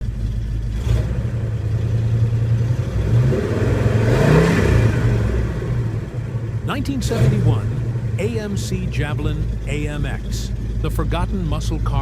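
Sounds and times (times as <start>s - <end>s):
car engine running and revving: 0.0s - 12.0s.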